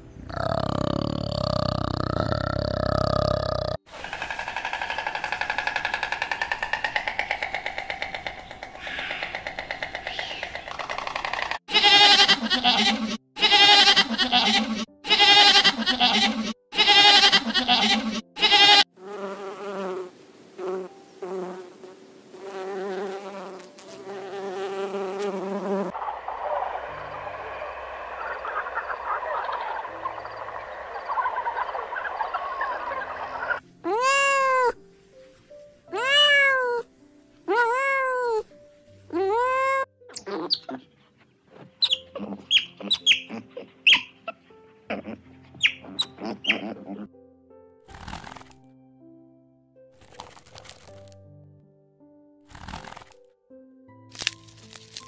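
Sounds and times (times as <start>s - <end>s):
storks calling: 3.9s - 11.6s, 25.9s - 33.6s
bumblebee buzzing: 17.8s - 25.9s
cat meowing: 33.9s - 34.8s, 35.9s - 36.9s, 37.5s - 38.5s.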